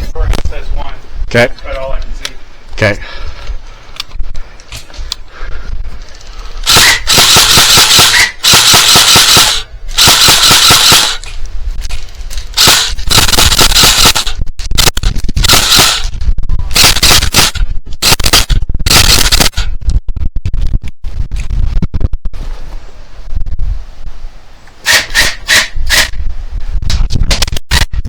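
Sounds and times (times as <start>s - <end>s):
airsoft rifle firing: 6.6s - 11.2s, 12.6s - 16.1s, 16.8s - 19.6s.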